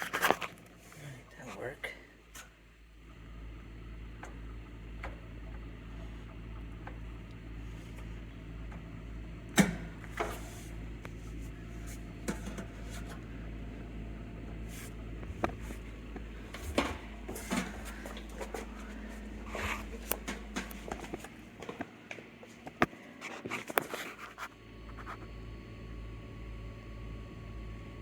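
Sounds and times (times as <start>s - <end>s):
pump humming: 3.0s - 22.4s
knocks and clicks of handling: 15.2s - 23.9s.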